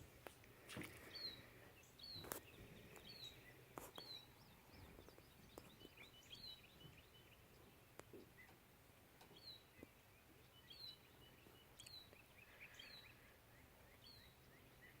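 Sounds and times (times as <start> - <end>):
soft bird twitters: 0.7 - 15.0
high falling bird chirp: 1.0 - 8.6.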